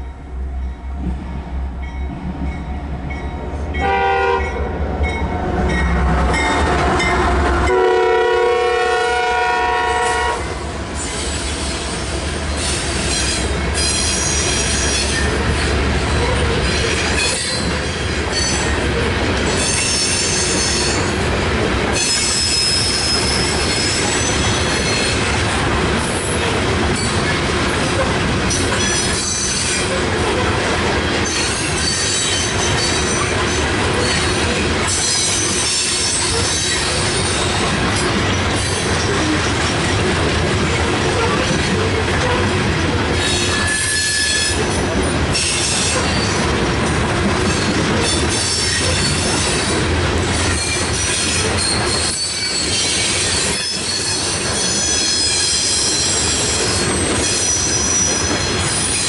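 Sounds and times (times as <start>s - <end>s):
steel wheels on rail: 0.0s - 59.0s
high-pitched wheel squeals: 22.0s - 25.2s, 43.2s - 44.6s, 50.6s - 59.0s.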